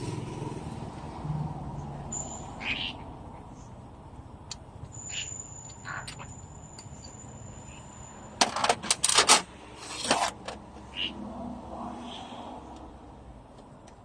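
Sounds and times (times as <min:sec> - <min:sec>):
metal parts clattering: 0:08.4 - 0:10.6.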